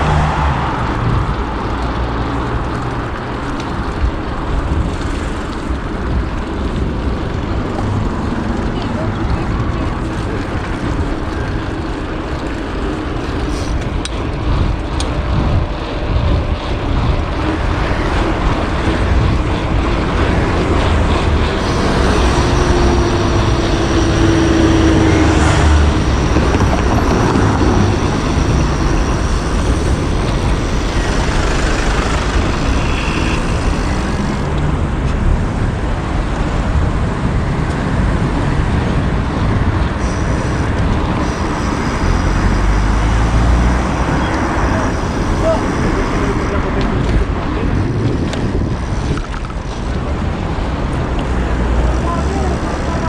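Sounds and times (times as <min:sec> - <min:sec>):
motor vehicles passing: 0:00.0 - 0:53.0
steady low traffic rumble: 0:00.0 - 0:53.0.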